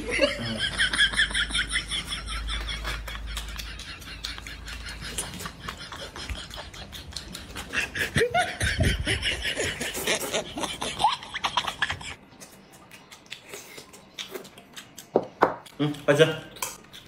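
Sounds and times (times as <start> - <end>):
wet chewing and slurping: 2.8 - 8.2.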